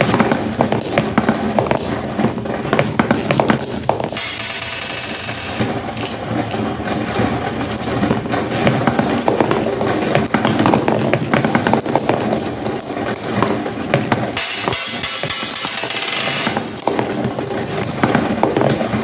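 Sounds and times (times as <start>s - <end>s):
marbles rolling down a track: 0.0s - 19.0s
marbles clicking: 3.0s - 11.0s.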